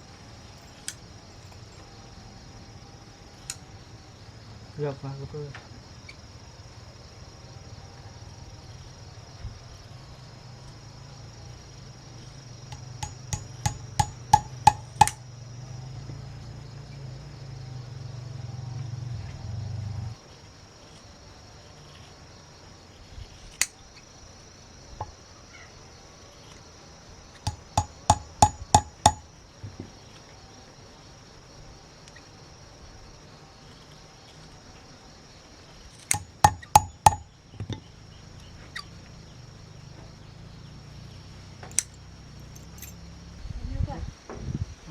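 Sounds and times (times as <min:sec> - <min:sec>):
insects buzzing: 0:00.0 - 0:44.9
hammer blows on wood: 0:12.7 - 0:15.2, 0:27.5 - 0:29.3, 0:36.1 - 0:37.8.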